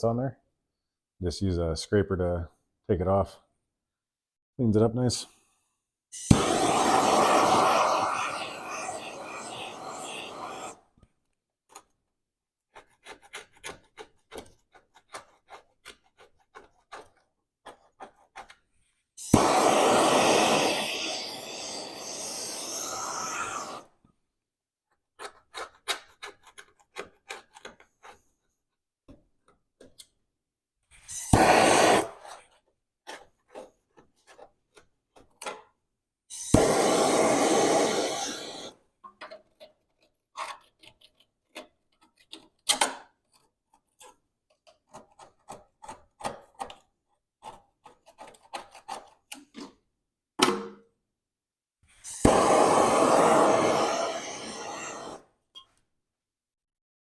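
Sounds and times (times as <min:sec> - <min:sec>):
loud hissing bursts: 0:06.2 - 0:10.8, 0:19.2 - 0:23.8, 0:31.1 - 0:32.1, 0:36.3 - 0:38.7, 0:52.1 - 0:55.2.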